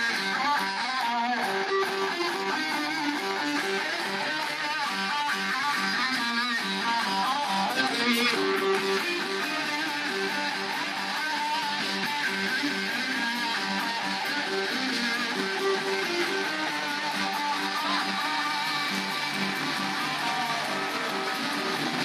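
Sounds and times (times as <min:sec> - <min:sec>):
electric guitars: 0:00.0 - 0:22.0
live heavy rock band: 0:00.0 - 0:22.0.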